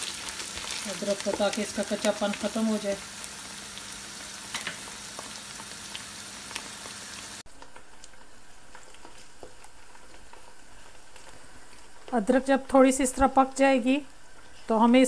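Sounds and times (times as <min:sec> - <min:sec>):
onions sizzling in hot oil: 0:00.0 - 0:07.4.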